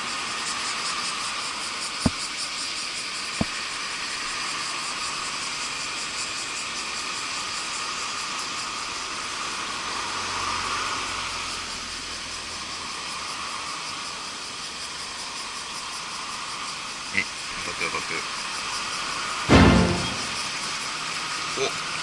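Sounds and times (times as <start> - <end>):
insects chorus hissing: 11.7 - 18.9.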